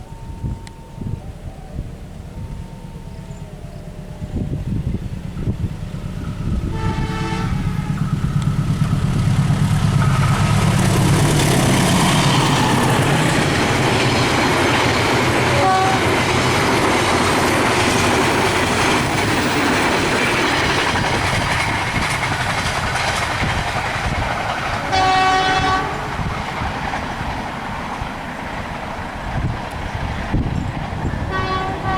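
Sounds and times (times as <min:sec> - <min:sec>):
locomotive engine rumble: 0:00.0 - 0:31.9
train wheels on rails: 0:00.0 - 0:31.9
train horn: 0:06.4 - 0:09.1, 0:15.2 - 0:16.6, 0:24.8 - 0:26.5, 0:31.2 - 0:31.9.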